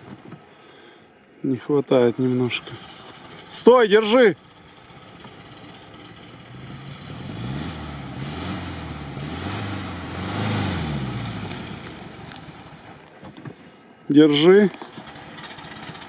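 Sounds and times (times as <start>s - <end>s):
car engine revving: 2.2s - 13.0s, 14.8s - 16.0s.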